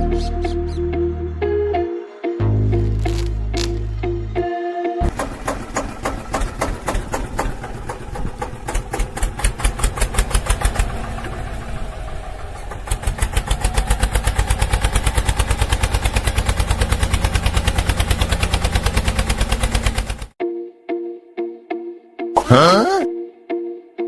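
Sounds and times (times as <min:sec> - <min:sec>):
tractor engine chugging: 0:05.1 - 0:20.4.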